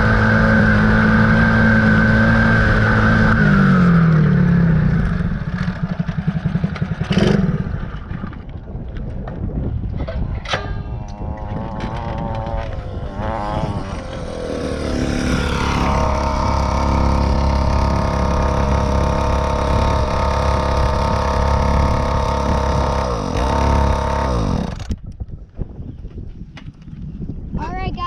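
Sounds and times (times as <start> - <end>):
dirt bike engine revving: 0.0 - 8.3, 11.0 - 25.0.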